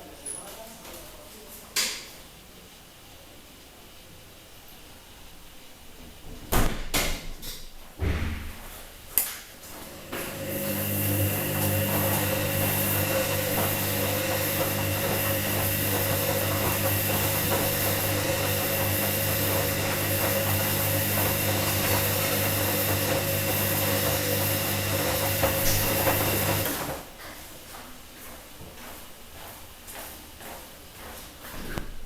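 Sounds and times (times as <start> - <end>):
washing machine motor humming: 9.7 - 27.1.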